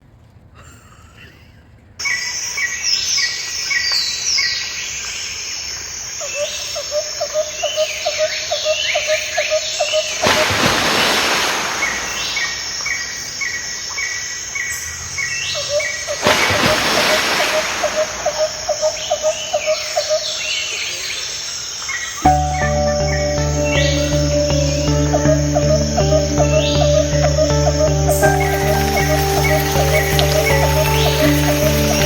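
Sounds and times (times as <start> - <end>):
steady hiss: 10.2 - 13.4, 28.1 - 32.0
bird-like chirps and whistles: 25.7 - 32.0.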